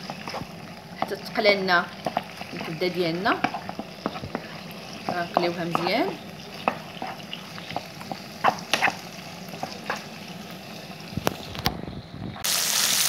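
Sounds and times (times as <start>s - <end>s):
spatula knocking and scraping pan: 0.0s - 10.4s
liver sizzling in a frying pan: 0.0s - 11.6s, 12.4s - 13.0s.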